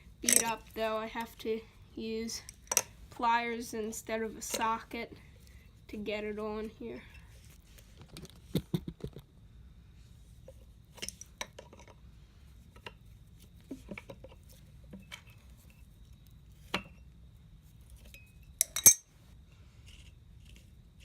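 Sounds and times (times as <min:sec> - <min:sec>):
pliers clinking on metal bolt: 0:00.2 - 0:00.6, 0:18.2 - 0:19.1.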